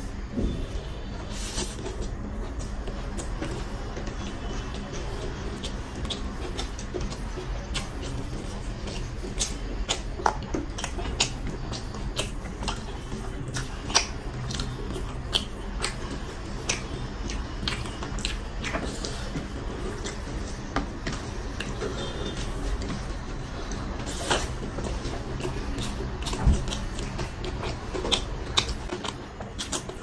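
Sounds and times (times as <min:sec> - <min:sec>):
man chewing wetly: 0:00.0 - 0:30.0
lip-smacking clicks: 0:05.5 - 0:24.6.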